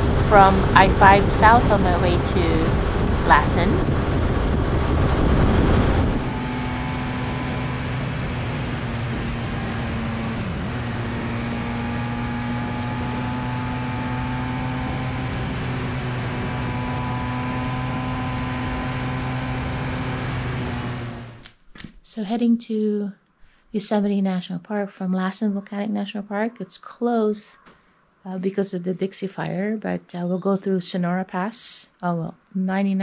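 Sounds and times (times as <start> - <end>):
wind rush over microphone: 0.0 - 20.8
motorcycle engine cruising: 0.0 - 21.5.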